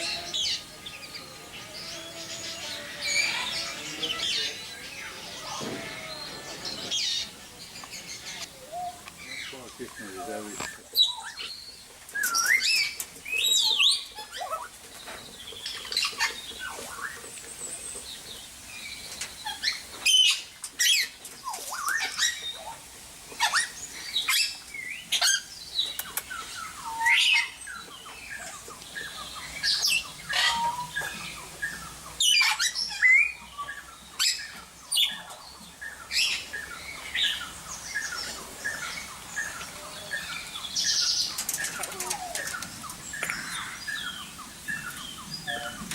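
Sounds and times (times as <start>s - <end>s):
birds chirping and whistling: 0.0s - 45.9s.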